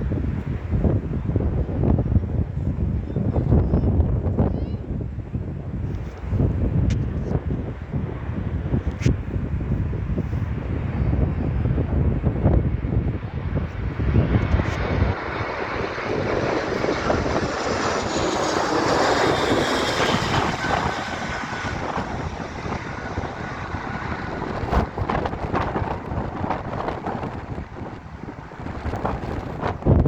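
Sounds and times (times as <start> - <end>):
wind buffeting microphone: 0.0 - 30.0
airliner engines whining: 10.5 - 30.0.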